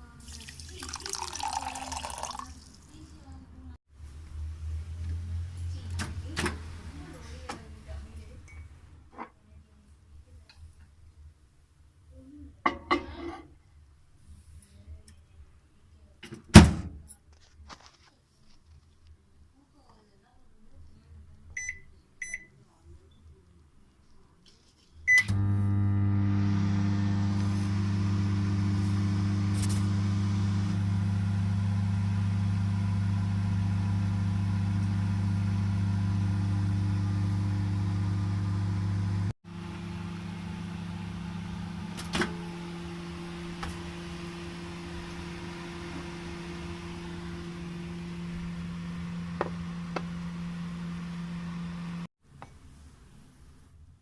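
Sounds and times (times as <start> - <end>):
microwave oven humming: 25.1 - 52.1.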